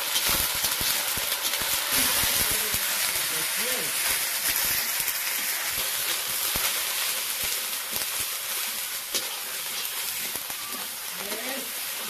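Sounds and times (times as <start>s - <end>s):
chicken sizzling in a pan: 0.0s - 12.0s.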